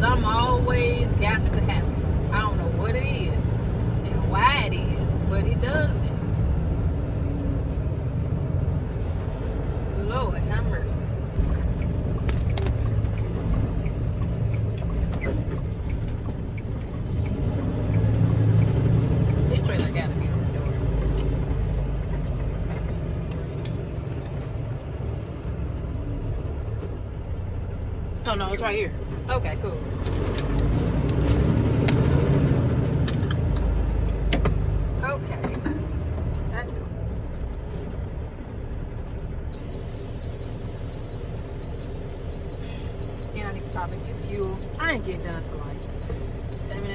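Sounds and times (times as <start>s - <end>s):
diesel truck engine running: 0.0s - 46.9s
short high beeps: 39.6s - 46.8s.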